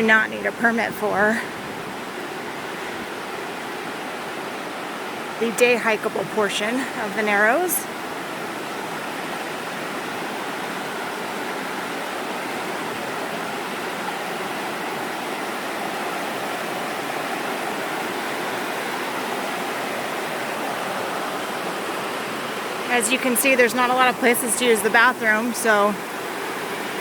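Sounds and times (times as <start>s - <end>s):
river water rushing: 0.0s - 27.0s.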